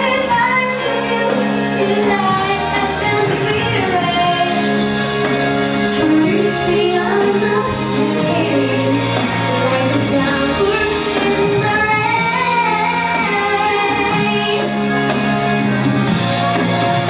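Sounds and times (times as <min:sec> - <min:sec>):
women singing: 0:00.0 - 0:04.6, 0:05.8 - 0:14.7
instrumental accompaniment: 0:00.0 - 0:17.0.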